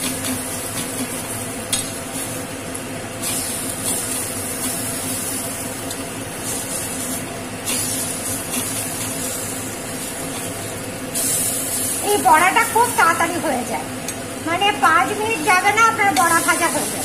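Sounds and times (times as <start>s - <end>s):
fritters sizzling in hot oil: 0.0s - 13.4s, 15.1s - 17.0s.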